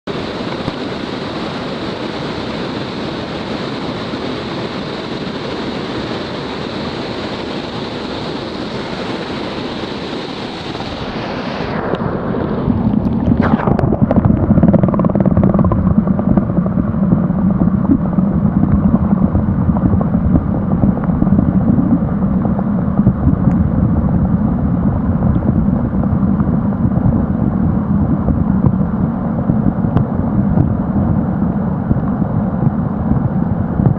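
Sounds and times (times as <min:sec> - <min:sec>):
low rumble: 0:10.7 - 0:33.9.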